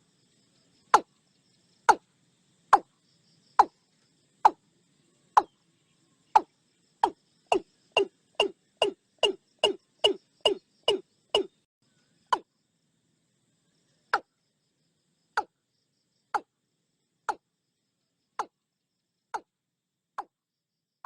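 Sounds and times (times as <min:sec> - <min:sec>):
bird calling falling notes: 0:06.4 - 0:11.5.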